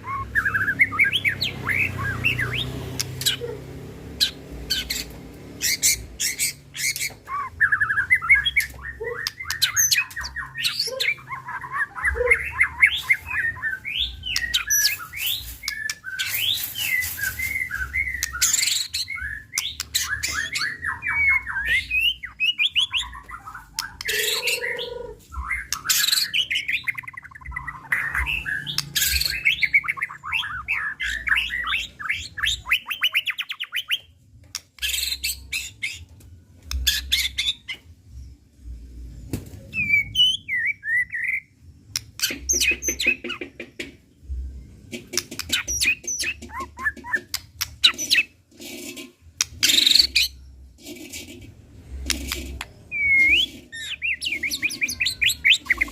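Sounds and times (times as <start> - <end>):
bird harsh chattering: 4.2 - 34.0, 52.1 - 55.9.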